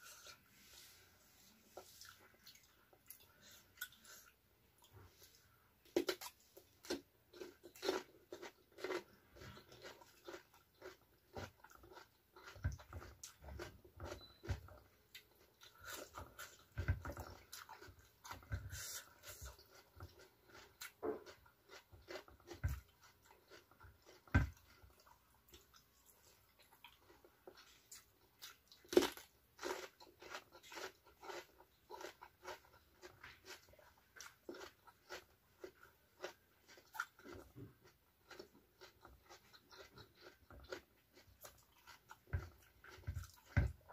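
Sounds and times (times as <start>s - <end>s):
crunching of raw vegetables: 5.8s - 43.9s.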